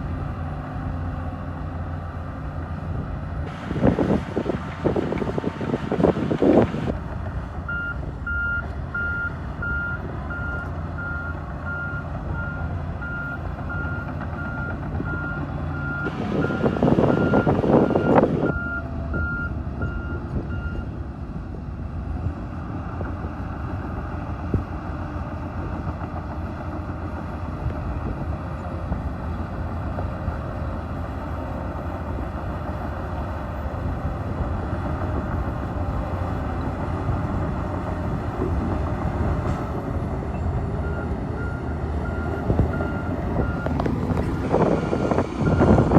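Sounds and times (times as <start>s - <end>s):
bulldozer engine rumble: 0.0s - 45.9s
reversing alarm beeping: 7.7s - 20.9s, 40.4s - 43.8s, 44.6s - 45.9s.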